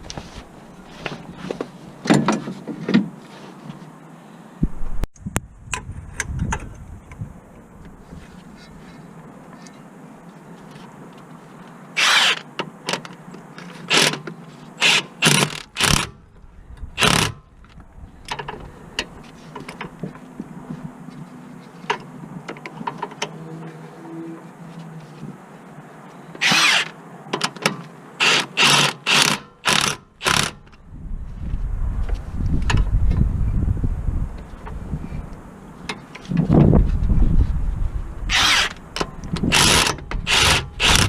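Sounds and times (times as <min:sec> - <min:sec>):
power tool bursts: 0:12.0 - 0:12.4, 0:26.4 - 0:26.9, 0:28.2 - 0:30.6, 0:38.3 - 0:38.8, 0:39.5 - 0:41.0.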